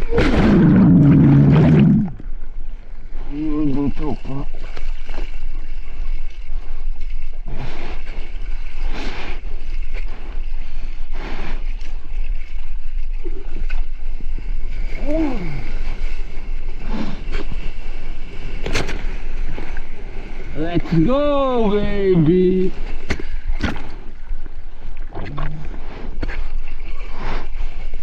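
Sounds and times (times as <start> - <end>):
low rumble: 0.0 - 3.8
water splashes: 0.0 - 28.0
wind at sea: 0.0 - 28.0.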